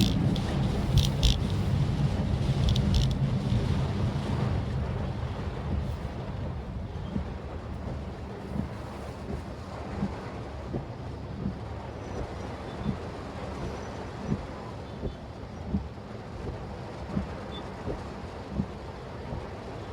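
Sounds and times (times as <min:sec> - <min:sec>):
road and engine rumble in car: 0:00.0 - 0:19.9.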